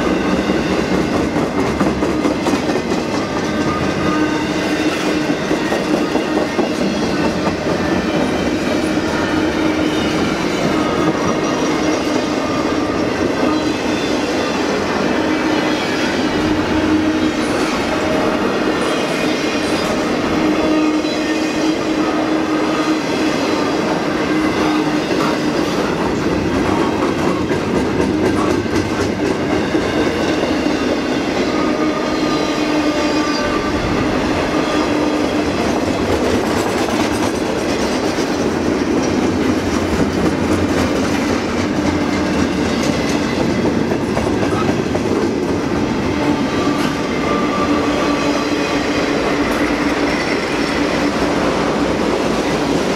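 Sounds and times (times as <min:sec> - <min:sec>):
train wheels clattering on rails: 0:00.0 - 0:52.9.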